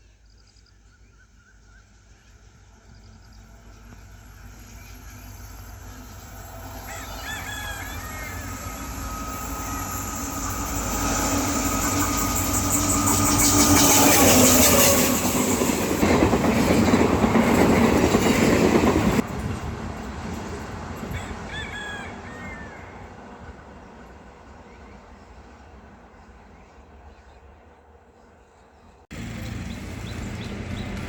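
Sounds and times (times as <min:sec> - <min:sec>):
diesel locomotive hum: 0:00.9 - 0:31.0.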